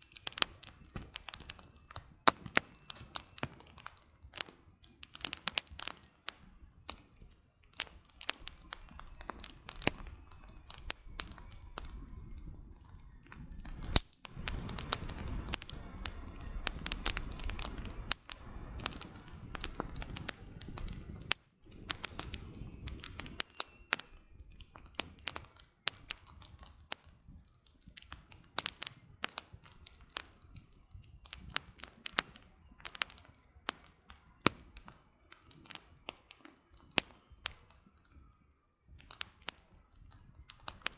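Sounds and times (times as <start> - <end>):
campfire crackling and popping: 0.0 - 40.9
low even rushing noise: 13.4 - 23.3.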